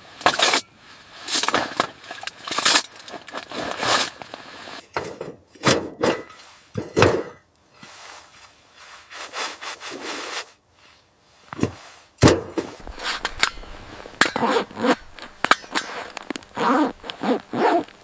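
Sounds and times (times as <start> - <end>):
rushing scrape: 12.8 - 18.0
sharp crunching strokes: 12.8 - 18.0.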